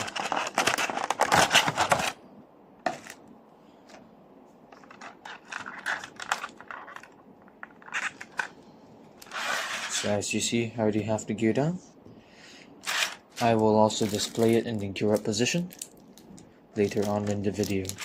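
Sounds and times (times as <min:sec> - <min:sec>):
scraping and rustling packaging: 0:00.0 - 0:02.2, 0:02.9 - 0:03.2, 0:04.7 - 0:08.6, 0:09.2 - 0:10.2, 0:12.8 - 0:16.2, 0:16.8 - 0:18.0.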